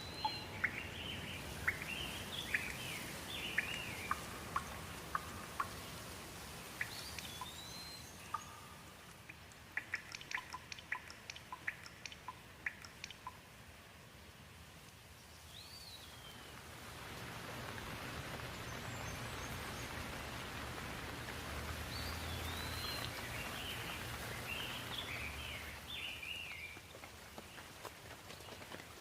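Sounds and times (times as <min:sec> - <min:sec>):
bird chirping: 0:00.0 - 0:06.0, 0:06.6 - 0:13.4, 0:21.9 - 0:26.9
raindrops dripping: 0:00.0 - 0:29.0
steady hiss of rain: 0:00.0 - 0:29.0.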